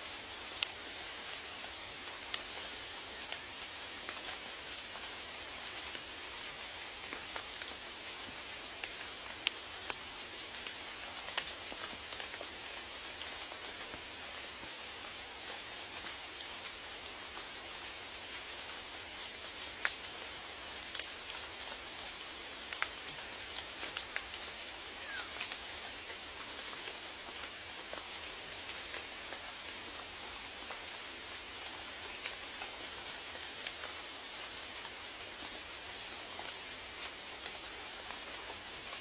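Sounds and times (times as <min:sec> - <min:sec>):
steady rain hiss: 0:00.0 - 0:39.0
raindrops ticking: 0:00.5 - 0:03.4, 0:06.6 - 0:14.0, 0:19.5 - 0:31.0.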